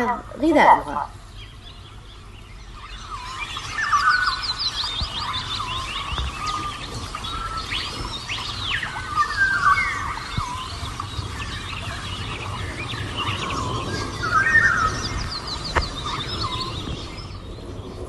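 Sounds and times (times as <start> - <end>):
small songbirds chirping: 0.0 - 18.0.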